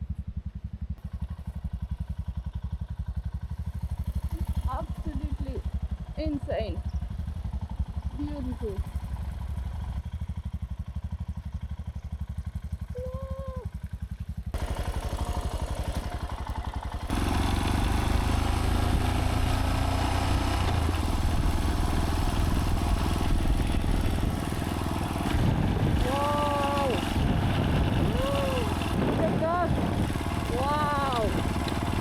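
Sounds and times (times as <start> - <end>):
motorcycle being ridden: 0.0 - 32.0
motorcycle engine idling: 0.0 - 32.0
wind and road noise: 14.6 - 32.0.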